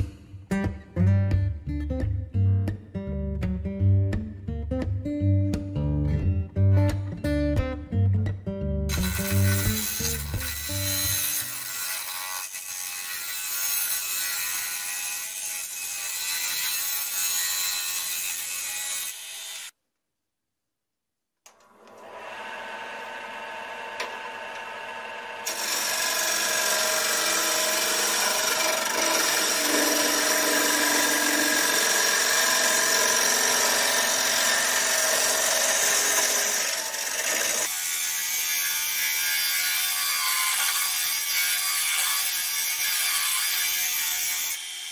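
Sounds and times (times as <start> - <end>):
wood lathe humming: 21.8 - 37.7.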